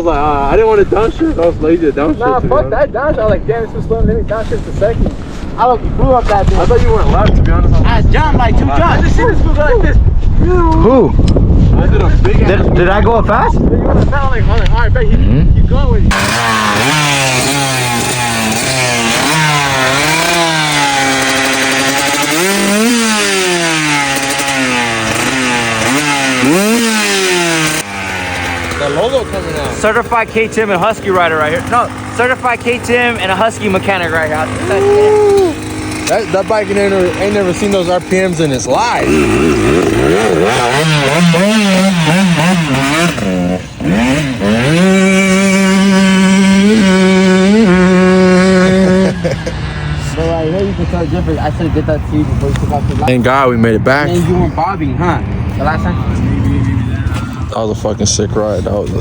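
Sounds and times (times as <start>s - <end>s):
dirt bike engine revving: 16.0s - 59.0s.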